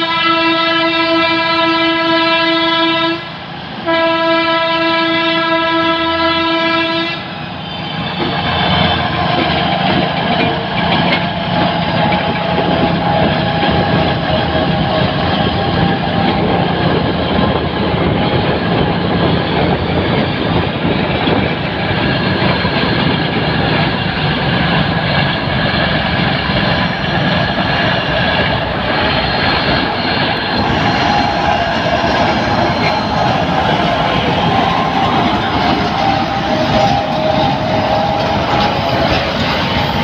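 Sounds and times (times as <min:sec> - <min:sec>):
railbus engine and wheels rolling: 0:00.0 - 0:40.0
steady high tones: 0:24.7 - 0:40.0.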